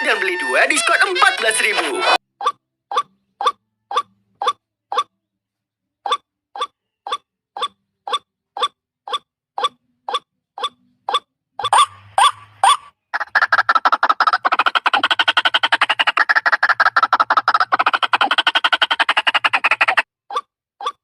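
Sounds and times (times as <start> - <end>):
waterhen call lure: 6.1 - 21.0.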